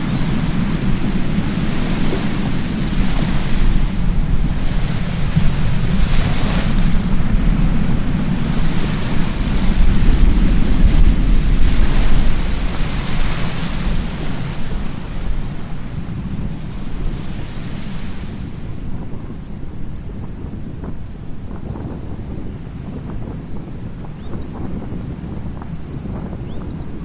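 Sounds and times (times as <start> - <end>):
surf washing on a beach: 0.0 - 26.8
wind buffeting microphone: 0.0 - 27.0.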